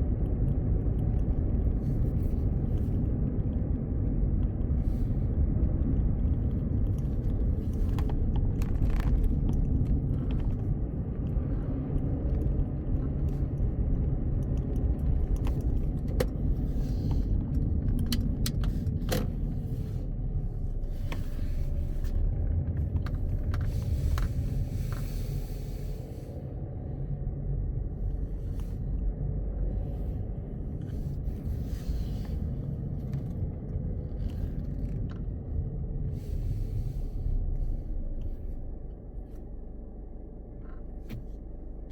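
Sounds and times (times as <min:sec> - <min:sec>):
car road and engine rumble: 0:00.0 - 0:41.9
small clicks and rattles: 0:05.8 - 0:10.8.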